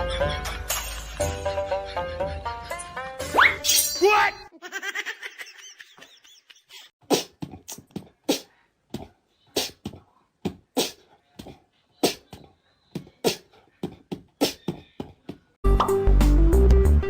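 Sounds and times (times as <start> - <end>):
cat hissing and spitting: 9.6 - 9.8, 10.8 - 11.0.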